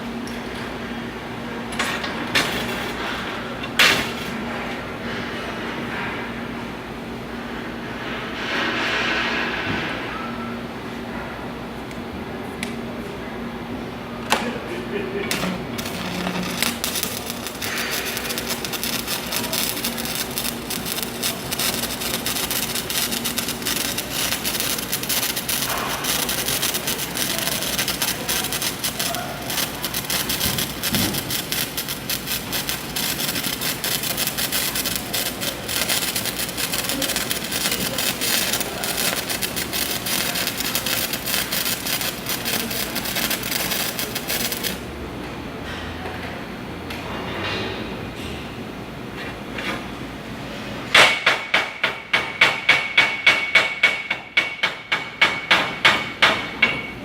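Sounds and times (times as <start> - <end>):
welding arc crackling: 2.0 - 3.3, 15.2 - 45.0.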